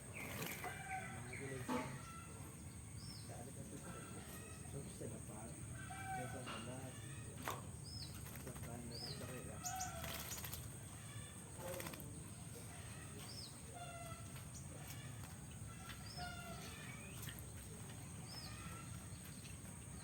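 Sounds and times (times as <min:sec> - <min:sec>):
bird chirping calls: 0:00.0 - 0:20.0
wing flutters and splashes: 0:00.2 - 0:01.1, 0:07.0 - 0:13.0.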